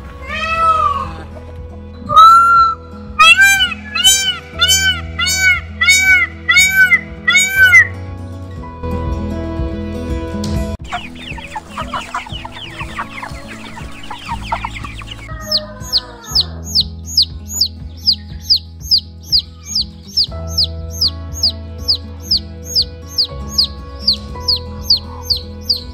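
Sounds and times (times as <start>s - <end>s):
chicks peeping: 10.8s - 25.9s.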